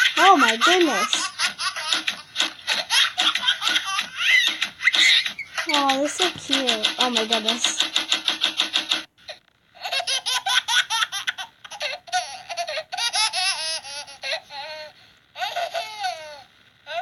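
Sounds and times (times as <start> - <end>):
baby giggling: 0.0 - 7.8, 9.8 - 17.0.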